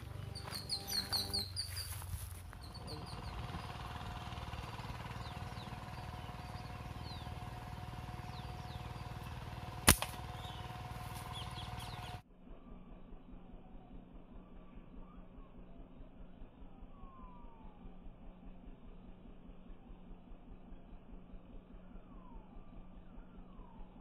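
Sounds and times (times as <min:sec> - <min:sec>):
small birds chirping: 0:00.0 - 0:12.2, 0:21.6 - 0:24.0
sharp snap: 0:09.8 - 0:10.3
faint steady tone: 0:12.3 - 0:24.0.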